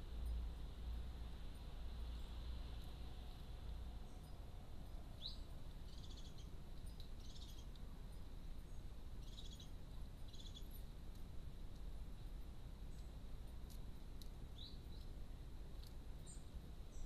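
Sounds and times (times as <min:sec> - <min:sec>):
steady background hiss: 0:00.0 - 0:17.0
small bird chirping: 0:02.0 - 0:02.9, 0:04.0 - 0:11.2, 0:12.9 - 0:17.0.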